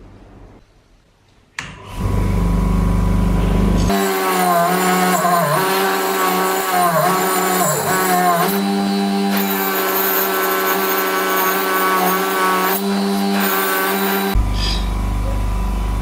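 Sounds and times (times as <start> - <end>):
steady low hum: 14.4 - 16.0.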